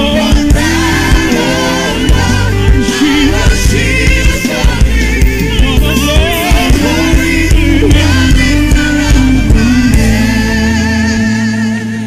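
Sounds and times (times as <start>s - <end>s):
gospel singing over a band: 0.0s - 12.0s.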